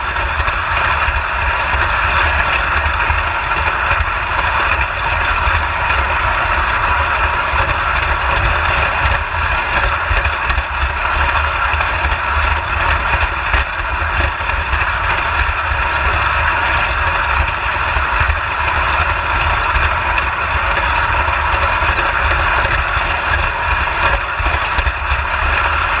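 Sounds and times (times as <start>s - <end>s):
wheels rumbling on rails: 0.0s - 26.0s.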